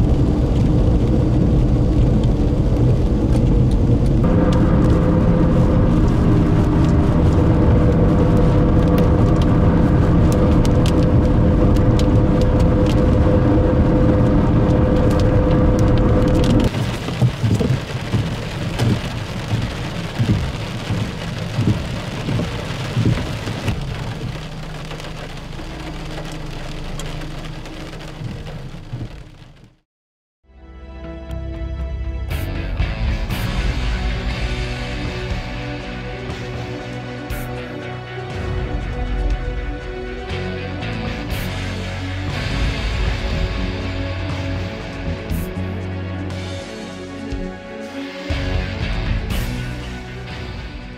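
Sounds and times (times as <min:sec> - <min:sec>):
wind gusts: 0:00.0 - 0:24.6
car road and engine drone: 0:00.0 - 0:29.8, 0:31.9 - 0:50.9
rain on car: 0:00.0 - 0:29.8, 0:33.3 - 0:37.7, 0:40.8 - 0:45.7, 0:48.3 - 0:50.9.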